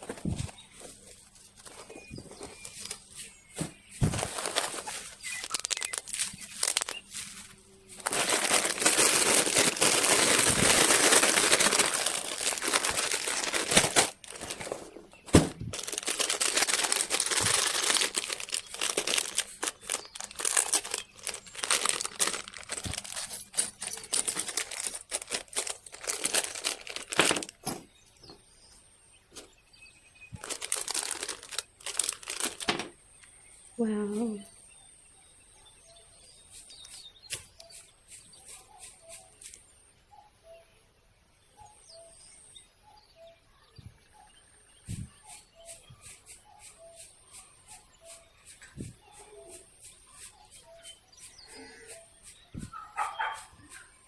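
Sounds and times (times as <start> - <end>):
crinkling and rustling: 0.0 - 28.4, 30.3 - 33.0.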